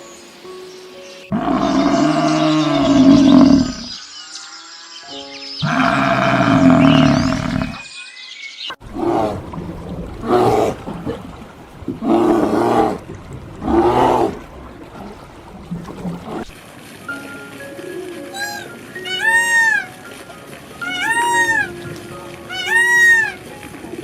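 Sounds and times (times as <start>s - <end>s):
large animal calling: 1.3s - 3.9s, 5.6s - 7.8s, 11.9s - 14.5s, 18.4s - 20.0s, 20.8s - 21.8s, 22.5s - 23.5s.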